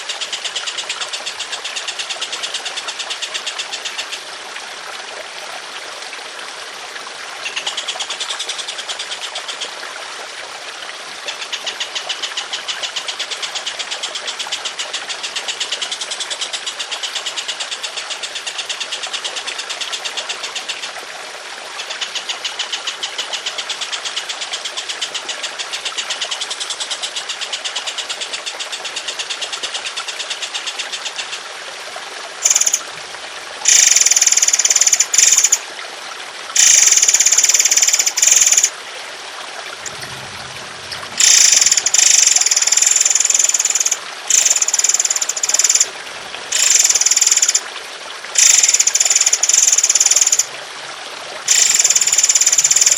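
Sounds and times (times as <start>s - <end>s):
trickling water: 0.0s - 52.9s
songbird rattling trills: 32.4s - 32.8s, 33.7s - 35.6s, 36.6s - 38.7s, 39.8s - 45.9s, 46.6s - 47.6s, 48.4s - 50.5s, 51.5s - 52.9s
short loud high bird calls: 39.8s - 45.0s.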